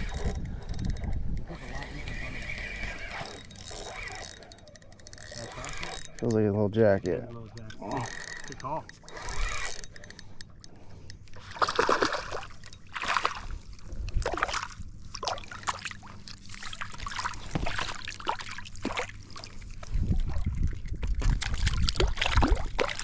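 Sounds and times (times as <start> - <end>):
fish splashing water: 11.4 - 13.6, 14.2 - 20.6, 21.2 - 23.0.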